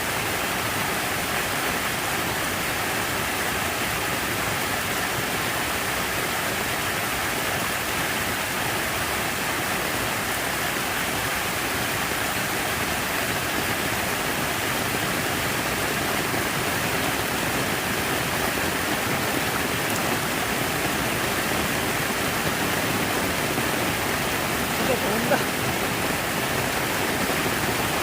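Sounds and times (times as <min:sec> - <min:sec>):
falling water rushing: 0:00.0 - 0:28.0.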